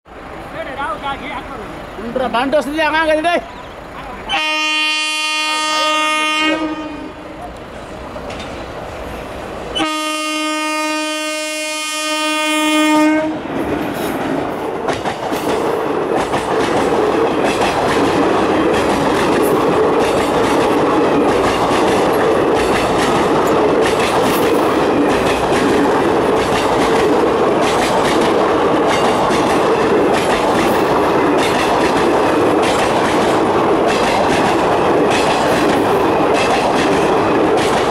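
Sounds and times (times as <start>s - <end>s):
train coaches rumbling past: 0.1s - 37.9s
locomotive horn blasts: 4.3s - 7.4s, 9.8s - 13.4s
wheels clickety-clack on rails: 5.9s - 10.0s, 11.8s - 37.9s.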